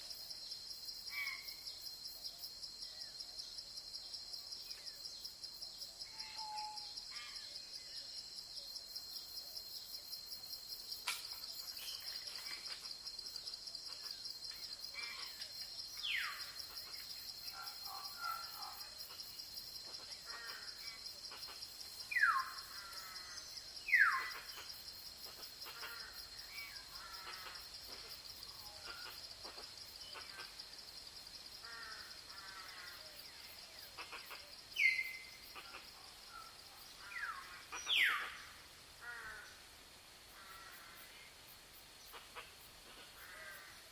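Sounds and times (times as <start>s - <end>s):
pulsing insect chorus: 0.0s - 43.9s
faint bird chirps: 6.0s - 8.1s, 33.3s - 38.4s.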